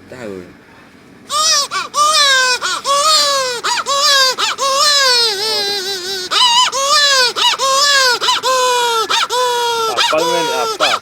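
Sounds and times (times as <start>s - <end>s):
person imitating baby crying: 1.3s - 11.0s.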